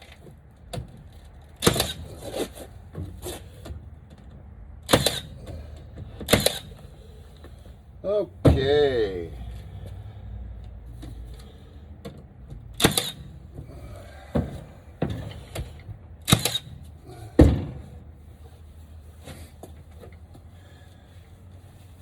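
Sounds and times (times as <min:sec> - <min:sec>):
wooden knocks of lumber: 0:14.2 - 0:15.7, 0:17.4 - 0:18.0.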